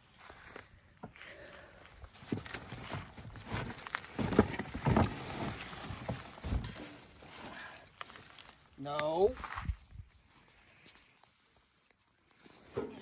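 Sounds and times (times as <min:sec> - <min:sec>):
packaging rustling and scraping: 0:02.1 - 0:08.6.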